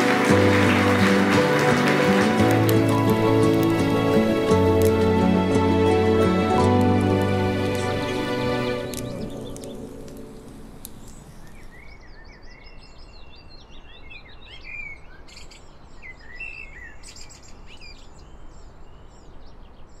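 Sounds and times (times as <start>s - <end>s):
music track: 0.0s - 11.3s
birds chirping and singing: 7.5s - 18.7s.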